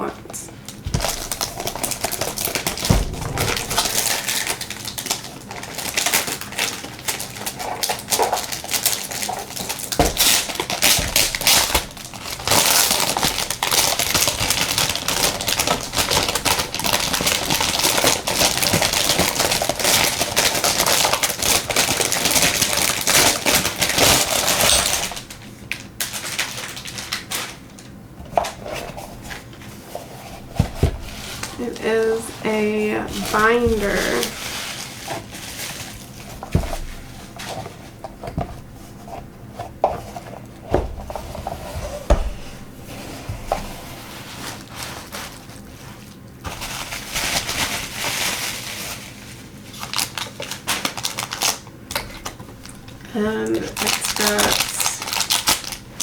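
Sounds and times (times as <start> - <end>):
packaging crinkling: 0.6 - 56.0.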